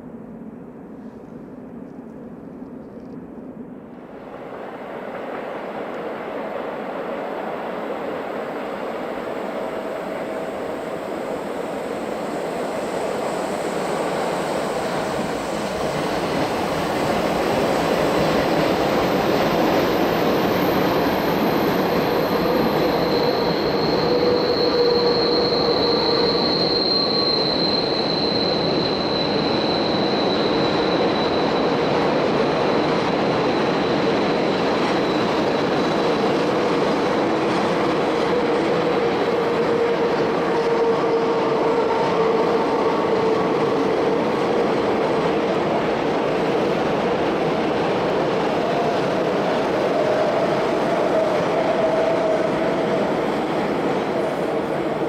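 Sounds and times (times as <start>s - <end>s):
train rolling rumble: 0.0s - 55.0s
wheels squealing: 18.2s - 36.8s.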